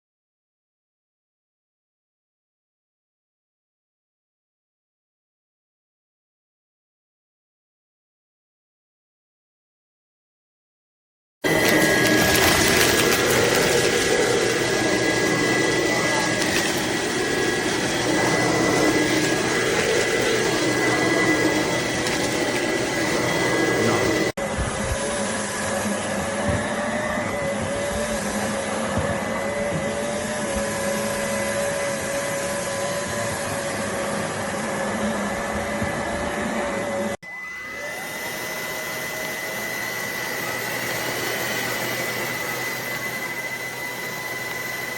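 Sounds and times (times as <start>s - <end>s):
stick vacuum motor whine: 11.4s - 44.9s.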